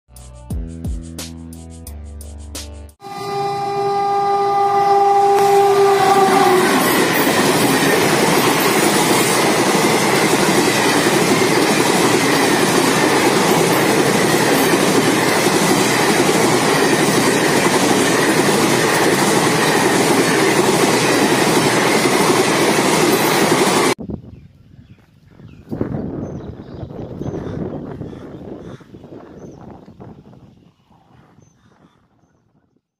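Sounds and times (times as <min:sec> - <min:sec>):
locomotive horn: 0:03.0 - 0:07.9
train coaches passing: 0:03.0 - 0:24.0.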